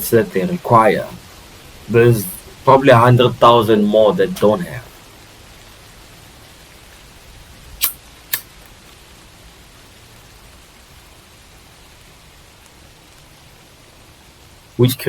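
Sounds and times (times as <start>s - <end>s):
steady background hiss: 0.0s - 15.0s
sharp clicks: 7.8s - 8.8s.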